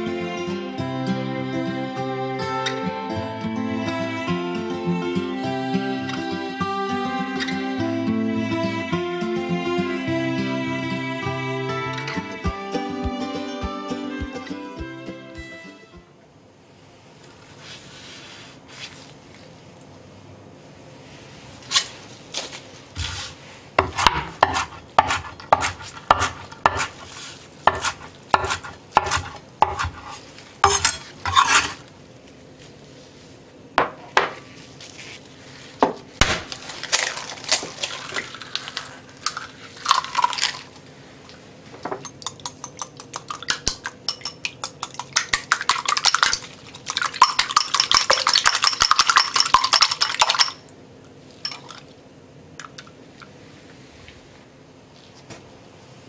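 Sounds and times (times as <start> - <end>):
knife chopping on wooden board: 23.8 - 27.0, 27.7 - 31.7
eggs cracking into bowl: 36.2 - 40.8, 42.0 - 50.6
whisk clattering against glass: 42.0 - 50.6.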